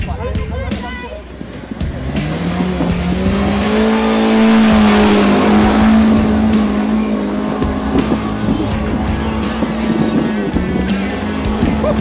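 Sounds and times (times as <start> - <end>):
suv engine revving hard: 0.3 - 12.0.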